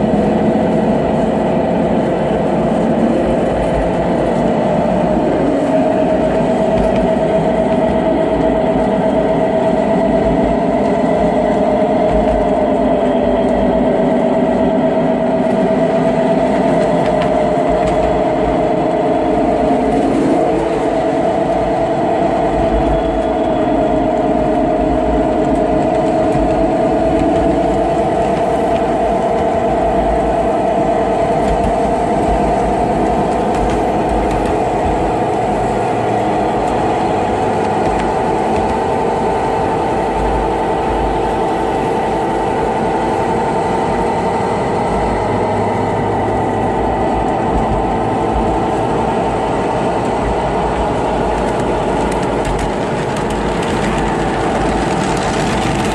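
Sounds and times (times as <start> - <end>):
model locomotive whine and rumble: 0.0 - 55.9.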